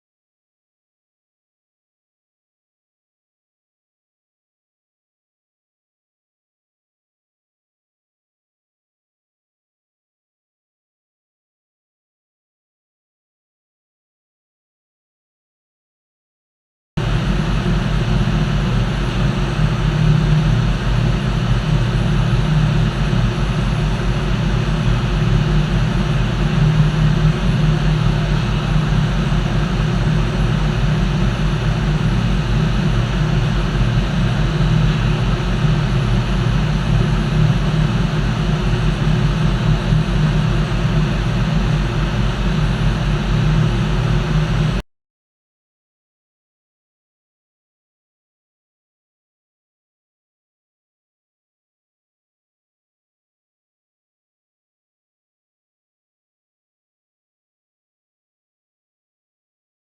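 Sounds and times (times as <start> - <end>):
engine room machinery drone: 17.0 - 44.8.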